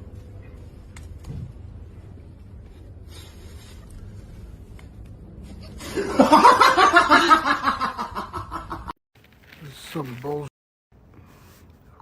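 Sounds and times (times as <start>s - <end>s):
faint low rumble: 0.0s - 6.6s
person laughing loudly: 5.8s - 8.9s.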